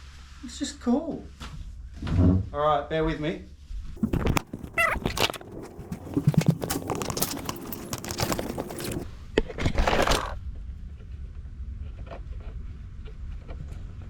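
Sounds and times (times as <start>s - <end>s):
objects clattering and rustling: 4.0s - 10.4s.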